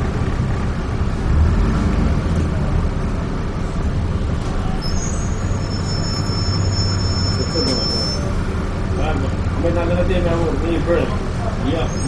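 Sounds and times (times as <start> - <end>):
bus engine rumble: 0.0 - 12.0
road noise: 0.0 - 12.0
high-pitched two-tone squeal: 4.8 - 8.4.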